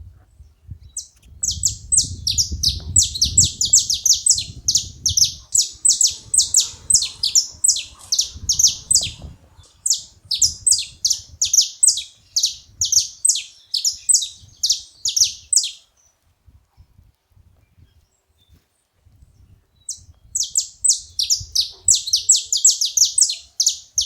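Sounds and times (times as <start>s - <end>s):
finch chirping: 0.9s - 15.8s, 19.9s - 24.0s.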